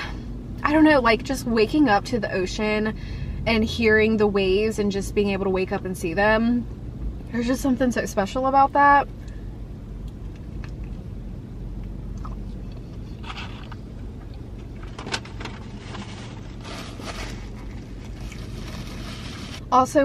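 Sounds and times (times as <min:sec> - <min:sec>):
car engine hum: 0:00.0 - 0:20.0
chewing: 0:12.1 - 0:14.4
paper food wrapping rustling: 0:14.9 - 0:19.6.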